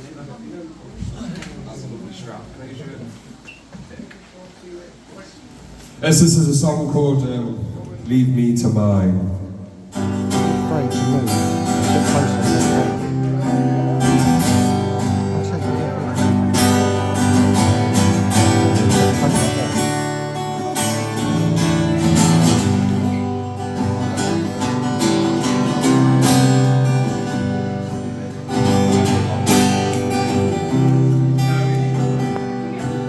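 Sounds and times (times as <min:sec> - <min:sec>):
acoustic guitar strumming: 0:06.2 - 0:33.0.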